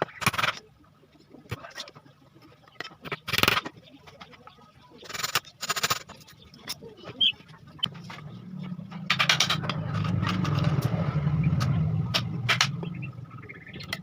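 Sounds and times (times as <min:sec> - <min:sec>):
sharp knocks and clicks: 0:08.9 - 0:13.0.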